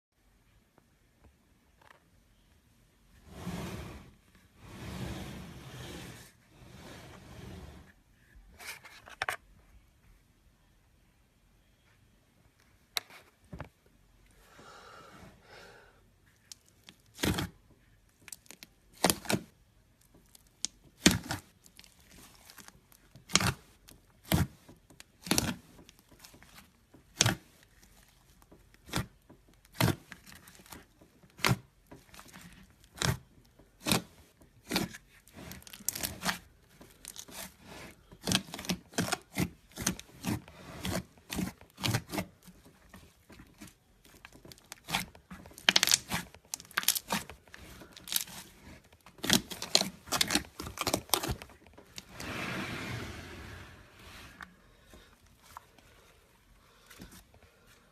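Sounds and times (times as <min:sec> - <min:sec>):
slime squelching in hands: 0:43.2 - 0:51.6.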